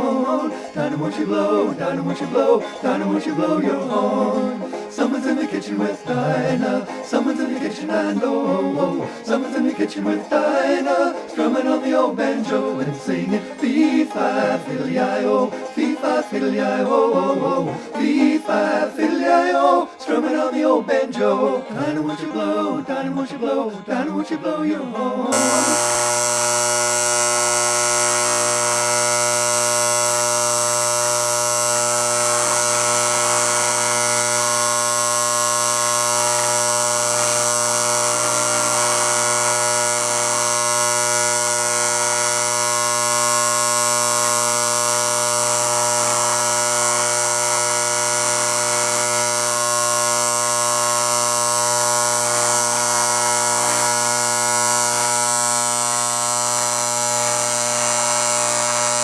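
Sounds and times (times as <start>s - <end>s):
steady electric buzz: 0.0s - 7.8s, 25.3s - 59.0s.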